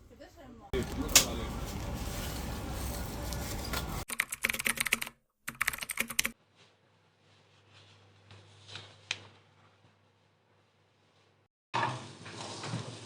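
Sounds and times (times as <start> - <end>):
fast typing on a keyboard: 4.1 - 6.4.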